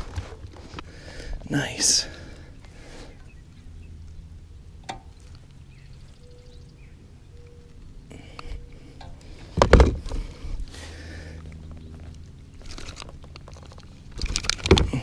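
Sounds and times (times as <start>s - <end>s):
low steady background noise: 0.0s - 15.0s
handling noise: 7.7s - 15.0s
heavy thump: 9.6s - 10.2s.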